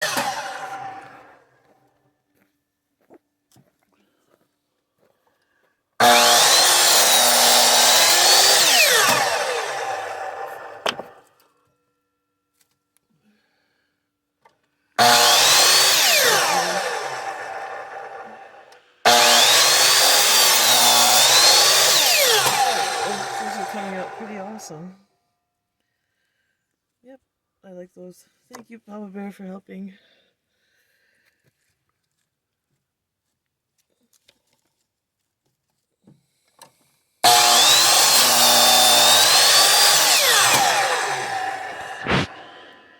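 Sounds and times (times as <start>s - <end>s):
miter saw running: 0.0s - 1.4s, 6.0s - 11.2s, 15.0s - 24.8s, 37.2s - 42.9s.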